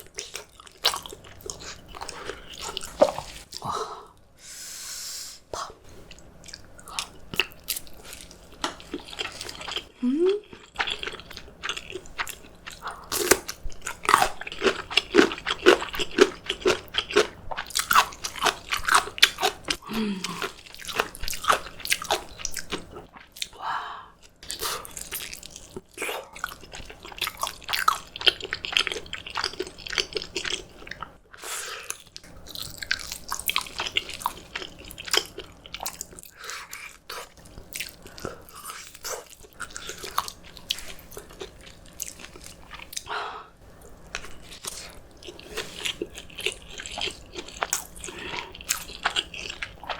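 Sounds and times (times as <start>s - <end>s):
chewing with crunchy bites: 0.0s - 3.7s, 6.0s - 23.6s, 24.2s - 43.1s, 43.7s - 49.9s.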